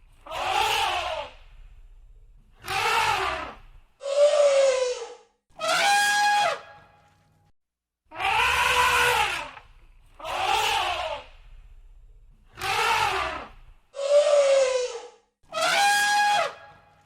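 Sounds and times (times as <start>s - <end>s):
elephants trumpeting: 0.2s - 1.4s, 2.6s - 6.8s, 8.1s - 9.6s, 10.2s - 11.6s, 12.5s - 16.6s.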